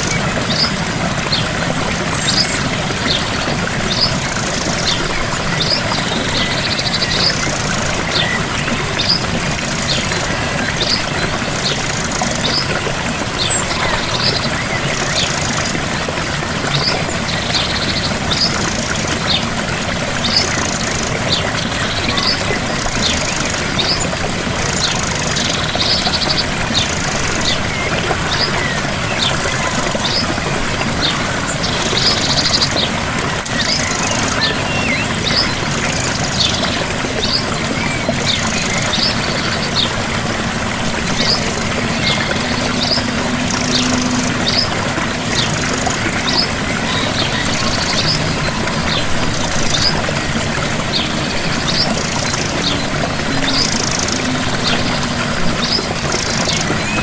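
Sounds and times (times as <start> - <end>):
waterfall rushing: 0.0 - 57.0
bird chirping and trilling: 33.5 - 57.0.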